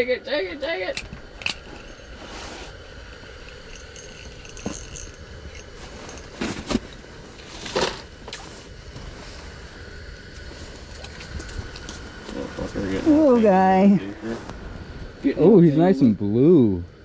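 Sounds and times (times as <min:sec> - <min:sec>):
steady low hum: 0:00.0 - 0:17.0
fishing gear scrapes and knocks: 0:03.4 - 0:08.7.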